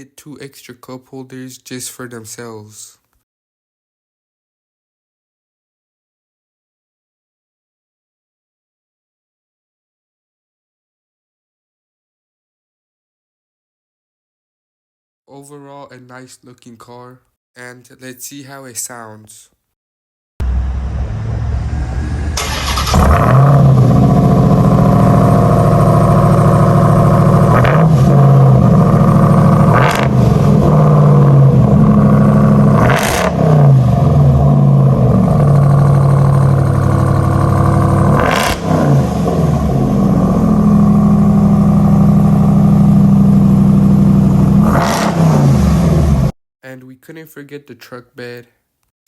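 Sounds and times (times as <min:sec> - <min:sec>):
car engine revving: 0:20.4 - 0:46.3.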